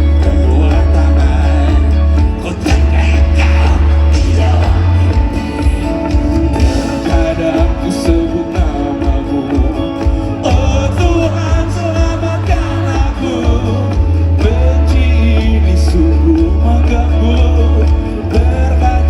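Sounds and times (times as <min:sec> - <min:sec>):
live band music: 0:00.0 - 0:19.0
person singing: 0:00.0 - 0:19.0.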